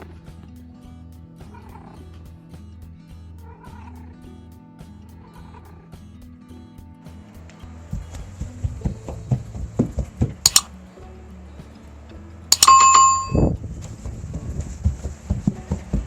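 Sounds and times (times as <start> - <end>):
background music with soft beat: 0.0 - 16.0
loud bell-like ding: 12.6 - 13.5.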